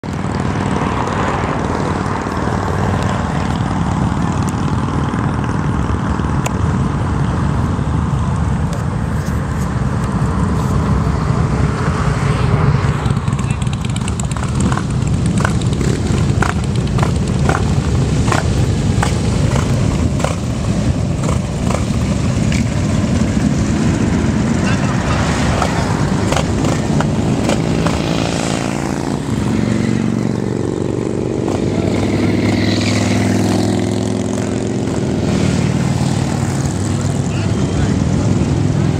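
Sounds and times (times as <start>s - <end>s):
motorcycle engines rumbling: 0.0s - 38.9s.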